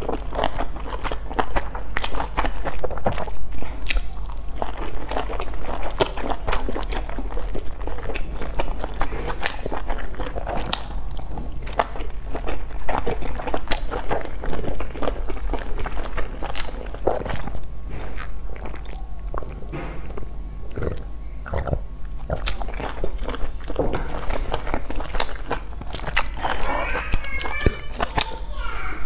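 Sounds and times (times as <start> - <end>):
person chewing dumplings: 0.0 - 28.5
mouth clicks: 16.4 - 23.4.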